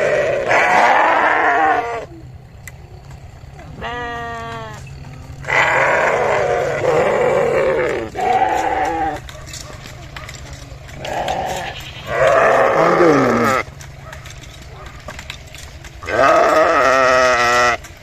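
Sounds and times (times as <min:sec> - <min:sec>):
sheep bleating: 0:00.0 - 0:02.1, 0:03.6 - 0:09.2, 0:11.0 - 0:13.7, 0:16.0 - 0:17.9.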